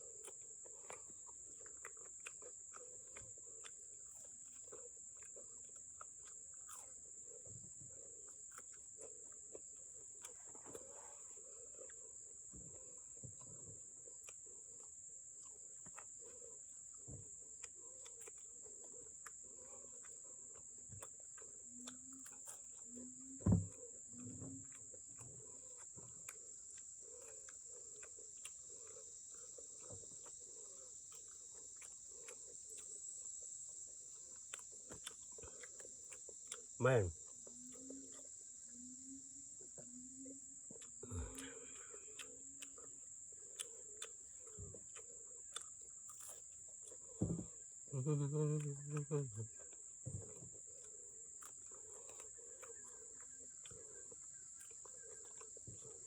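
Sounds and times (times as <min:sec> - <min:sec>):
person chewing: 0:00.0 - 0:38.9, 0:39.8 - 0:56.0
insects chirring: 0:00.0 - 0:56.0.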